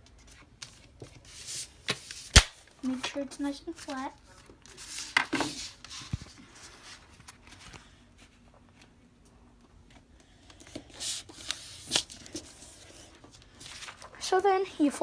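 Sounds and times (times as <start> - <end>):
paper rustling while folded: 10.5 - 15.0.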